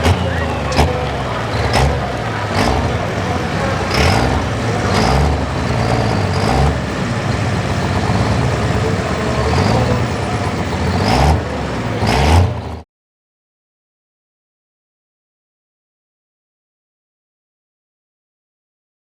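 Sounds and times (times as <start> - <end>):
diesel pickup engine revving: 0.0 - 12.8.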